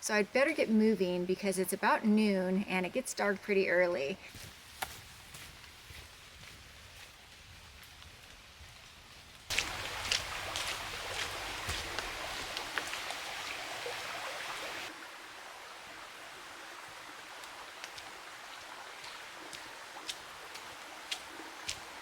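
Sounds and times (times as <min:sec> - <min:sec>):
rushing water hiss: 0:09.5 - 0:22.0.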